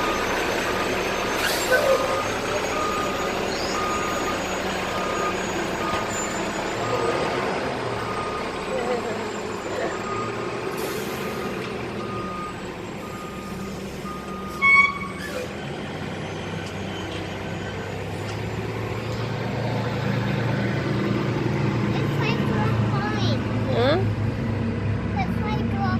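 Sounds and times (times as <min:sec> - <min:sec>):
reversing alarm beeps: 0:00.0 - 0:07.4, 0:08.0 - 0:08.6, 0:09.2 - 0:15.3
diesel engine running: 0:00.0 - 0:25.9.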